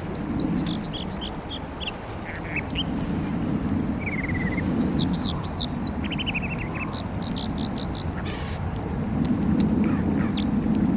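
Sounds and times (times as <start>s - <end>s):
bird singing whistles and trills: 0.3s - 8.5s.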